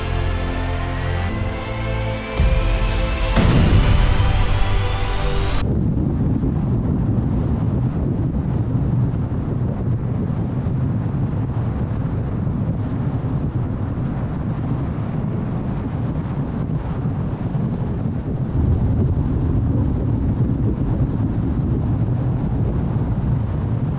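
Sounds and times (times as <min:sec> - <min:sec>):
music: 0:00.0 - 0:05.6
wind: 0:02.8 - 0:23.9.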